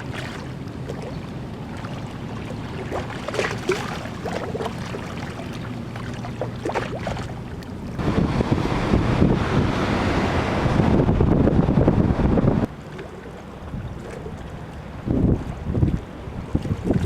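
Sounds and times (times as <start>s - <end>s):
small ticks and splashes: 0.0s - 8.0s
low motor hum: 0.0s - 17.0s
wind buffeting microphone: 6.2s - 12.8s, 13.4s - 17.0s.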